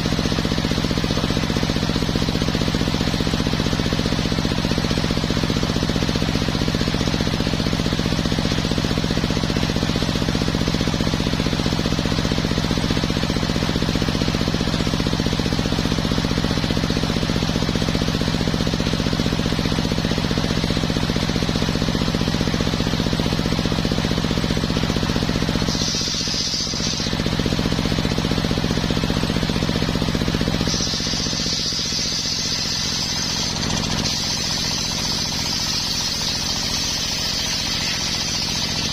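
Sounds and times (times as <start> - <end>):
high steady whine: 0.0 - 38.9
circular sawmill sawing wood: 24.0 - 38.9.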